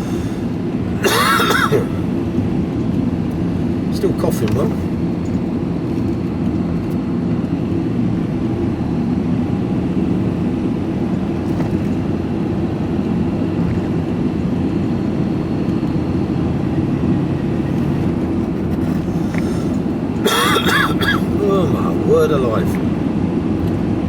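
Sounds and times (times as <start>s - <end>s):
engine and road noise drone: 0.0s - 24.0s.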